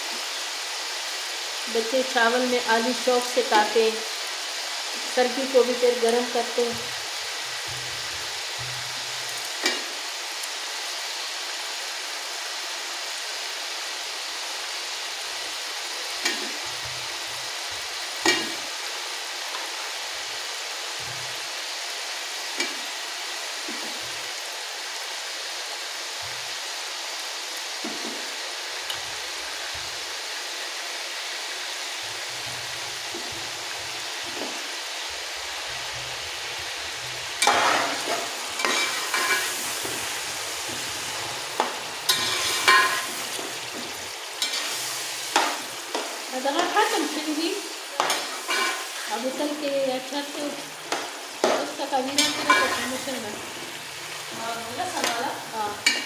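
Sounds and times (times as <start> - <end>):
food sizzling in ghee: 0.0 - 56.0
metal spatula scraping pot: 37.4 - 41.0, 42.1 - 43.7, 44.4 - 44.9, 48.0 - 49.0, 52.1 - 53.0.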